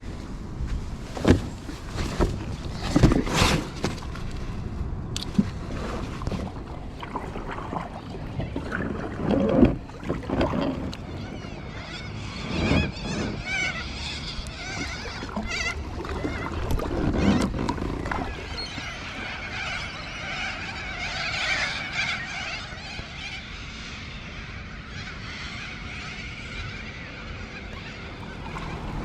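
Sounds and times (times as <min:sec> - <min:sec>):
birds chirping and warbling: 0:06.2 - 0:29.0.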